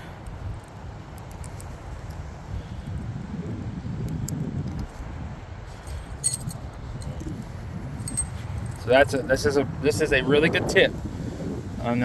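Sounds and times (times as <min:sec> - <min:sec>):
wind buffeting microphone: 0:00.0 - 0:12.0
metallic clatter: 0:05.8 - 0:07.1.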